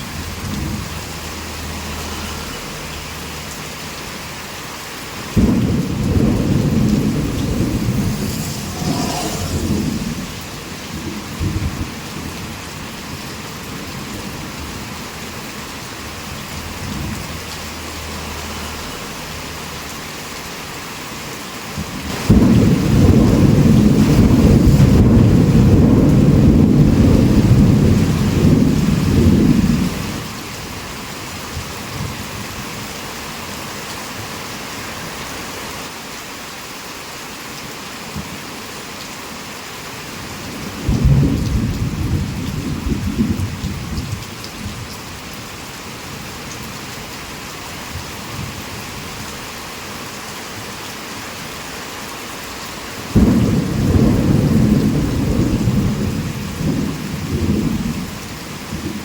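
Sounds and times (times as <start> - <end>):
heavy rain: 0.0 - 59.0
rolling thunder: 5.3 - 14.9, 21.8 - 30.3, 40.6 - 44.9, 53.1 - 59.0.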